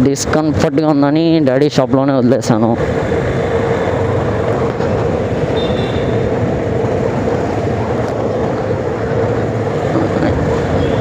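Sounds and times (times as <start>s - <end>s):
wind and road noise: 0.0s - 11.0s
motorcycle engine running: 2.8s - 11.0s.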